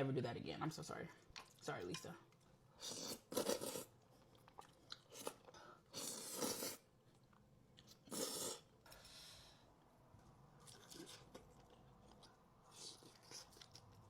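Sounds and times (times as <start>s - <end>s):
crunchy chewing of fried food: 2.8s - 9.2s, 10.2s - 14.0s.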